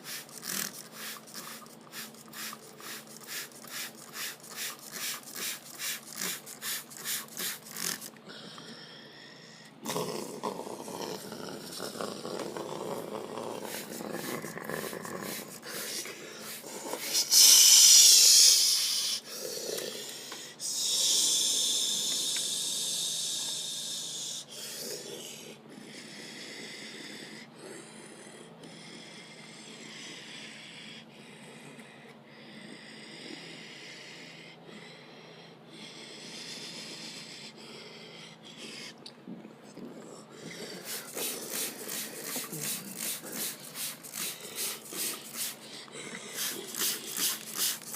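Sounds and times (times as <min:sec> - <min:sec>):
cloth brushes rubbing: 0:40.8 - 0:45.6.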